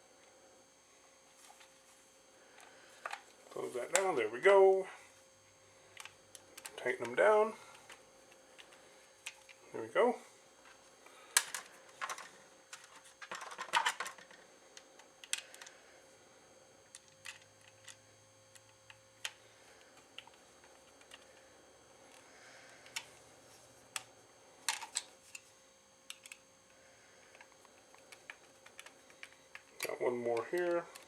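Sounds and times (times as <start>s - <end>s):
plastic parts clicking: 6.0s - 7.2s, 11.3s - 14.4s, 15.0s - 15.7s, 23.9s - 25.4s, 26.1s - 26.4s, 27.3s - 31.0s.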